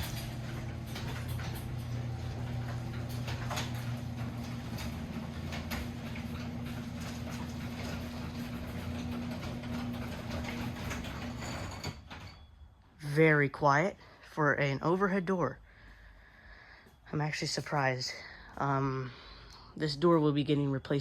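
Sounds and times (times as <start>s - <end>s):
light clicks and rattles: 0.0s - 12.3s
garage door opener motor hum: 0.0s - 12.6s.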